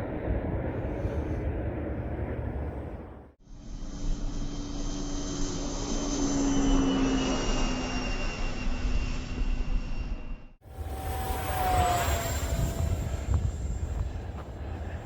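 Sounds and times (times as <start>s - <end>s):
wind rumble on microphone: 0.0s - 3.4s, 11.0s - 15.0s
model jet motor whine: 10.6s - 14.6s.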